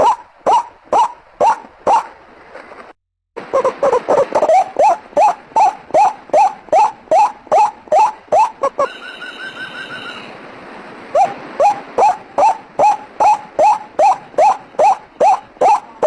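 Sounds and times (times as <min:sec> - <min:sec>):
waterhen calling: 0:00.0 - 0:02.1, 0:03.4 - 0:10.4, 0:11.1 - 0:16.0
fast-pulsed bird trill: 0:04.5 - 0:10.4.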